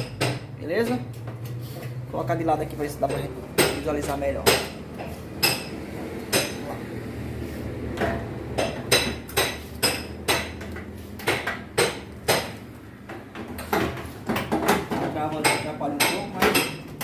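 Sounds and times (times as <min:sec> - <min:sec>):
plastic parts knocking and clattering: 0:13.2 - 0:15.4.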